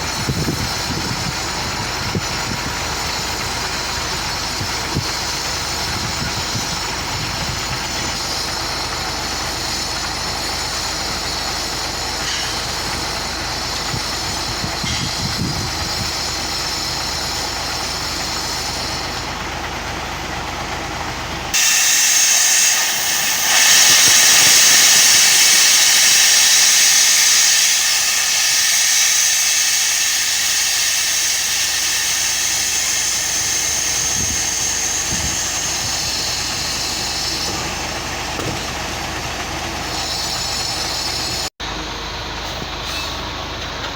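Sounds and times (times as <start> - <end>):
diesel truck engine running: 0.0 - 43.9
loud steady hiss: 21.5 - 43.6.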